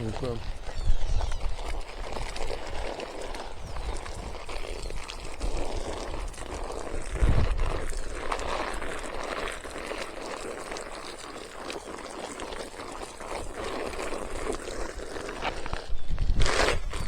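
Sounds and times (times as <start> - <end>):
wind buffeting microphone: 0.0 - 8.9, 15.6 - 17.0
water pouring and splashing: 0.0 - 17.0.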